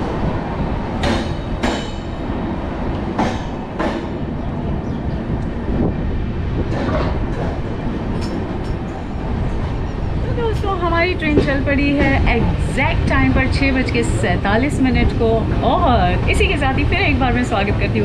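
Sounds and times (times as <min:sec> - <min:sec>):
train rolling rumble: 0:00.0 - 0:18.0.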